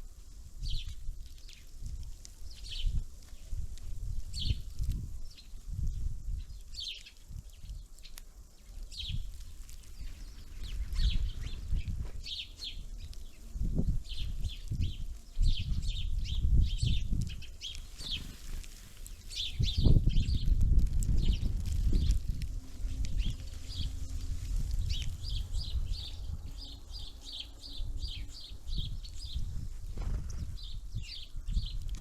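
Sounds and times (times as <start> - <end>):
songbirds chirping: 0.0 - 32.0
low rumbling bumps on microphone: 28.0 - 30.8.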